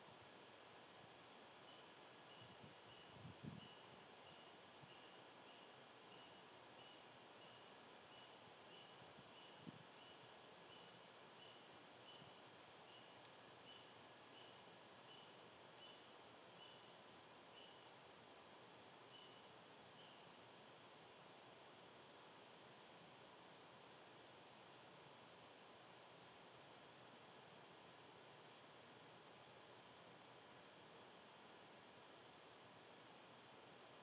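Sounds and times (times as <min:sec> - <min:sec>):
cricket chirping: 0:00.0 - 0:34.0
outdoor background hiss: 0:00.0 - 0:34.0.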